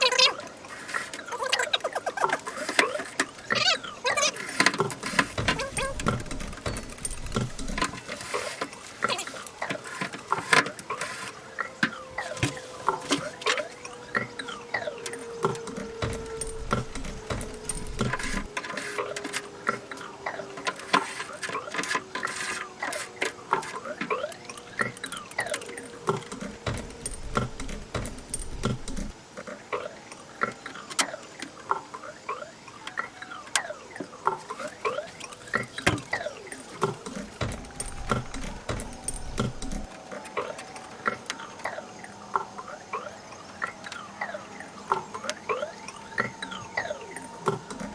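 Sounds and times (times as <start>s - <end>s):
rapid clicks taps and squeaks: 0.0s - 47.9s.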